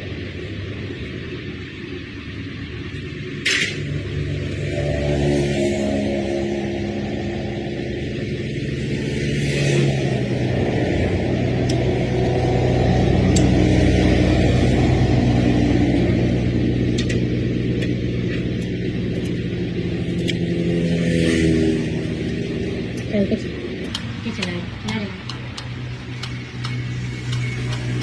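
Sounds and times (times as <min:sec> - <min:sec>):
motor engine running: 0:06.2 - 0:28.0.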